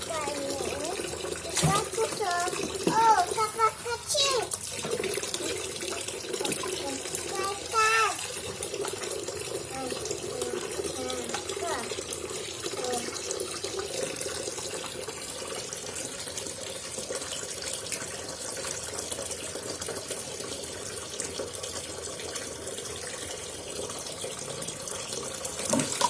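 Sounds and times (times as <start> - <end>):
water running in a sink: 0.0 - 26.0.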